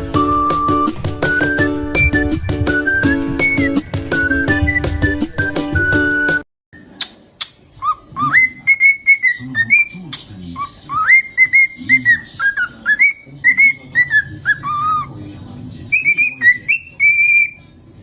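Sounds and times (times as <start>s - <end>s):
bird whistling a tune: 0.2s - 6.4s, 7.8s - 10.0s, 10.9s - 15.0s, 15.9s - 17.6s.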